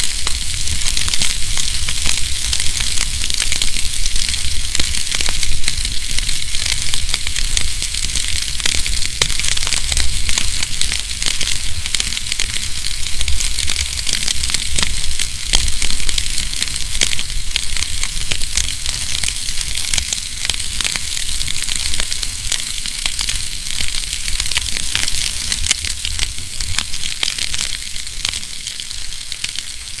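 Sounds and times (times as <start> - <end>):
fire crackling and popping: 0.0 - 30.0
fire hissing: 0.0 - 30.0.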